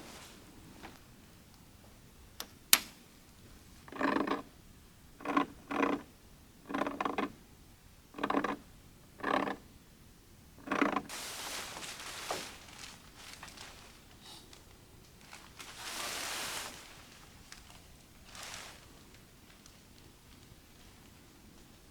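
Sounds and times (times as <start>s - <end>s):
rustling hiss: 0.0s - 1.0s, 11.0s - 21.9s
footsteps crunching in snow: 11.1s - 14.3s, 15.2s - 21.1s.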